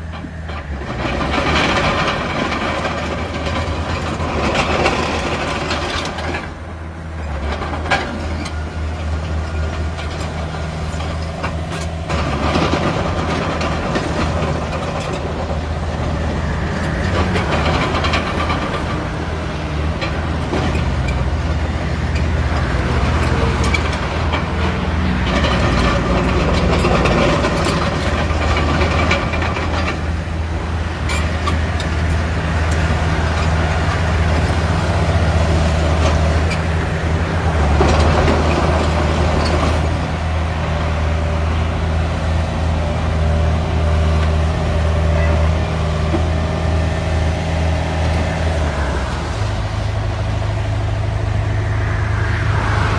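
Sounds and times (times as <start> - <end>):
heavy diesel engines droning: 0.0 - 52.9
noisy rush: 44.6 - 52.9.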